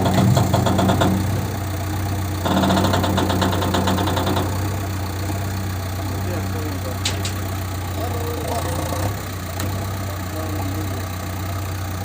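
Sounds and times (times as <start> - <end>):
diesel engine idling: 0.0 - 12.0
rapid even ticking: 2.4 - 5.2.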